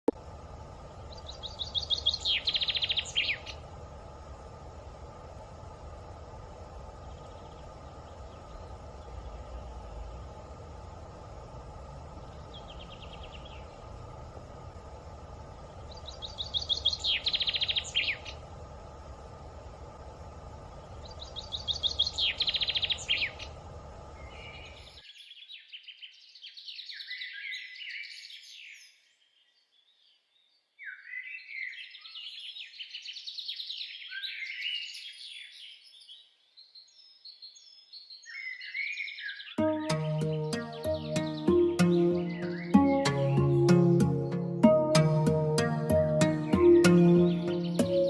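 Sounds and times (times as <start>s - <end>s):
low background hum: 0.0s - 25.0s, 39.6s - 48.0s
songbirds singing: 0.7s - 3.7s, 6.6s - 10.6s, 11.9s - 14.2s, 15.4s - 18.5s, 20.7s - 48.0s.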